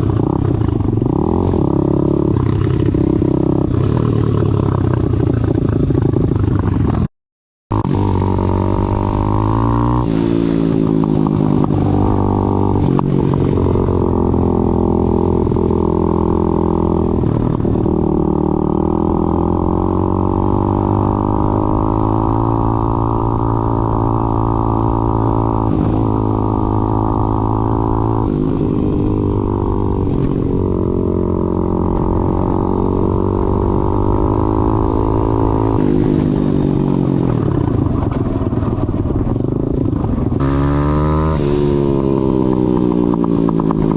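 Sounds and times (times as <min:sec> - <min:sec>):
pit bike engine revving: 0:07.7 - 0:37.4, 0:39.6 - 0:43.9.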